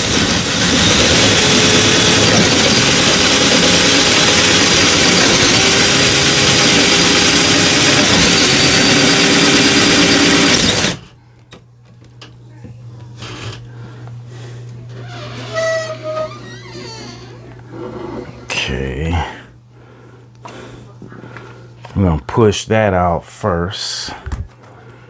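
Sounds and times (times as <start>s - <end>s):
power drill boring through wood: 0.0s - 11.1s, 15.1s - 17.6s.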